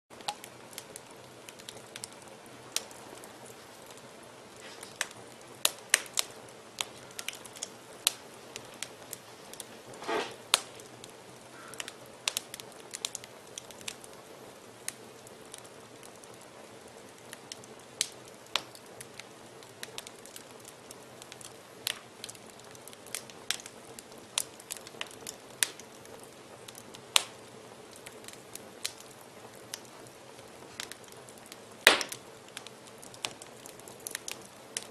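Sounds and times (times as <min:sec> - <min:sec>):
fire crackling and popping: 0:00.1 - 0:34.9
brief hiss: 0:09.9 - 0:10.4.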